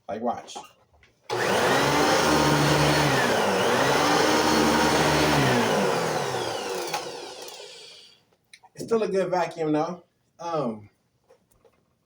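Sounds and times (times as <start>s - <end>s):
vacuum cleaner motor running: 1.3s - 8.1s.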